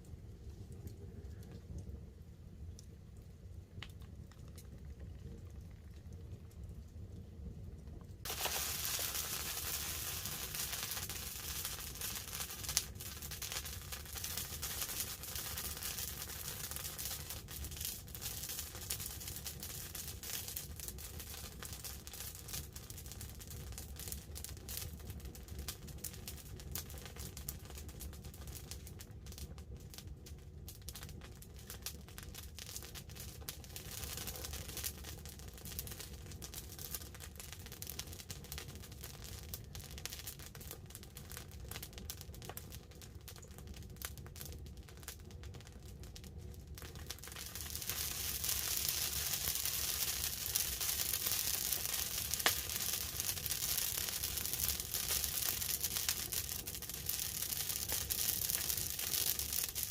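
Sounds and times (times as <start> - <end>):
campfire crackling: 0.0 - 59.9
rain pattering on a tarp: 2.7 - 59.9
dense hiss: 8.2 - 14.9.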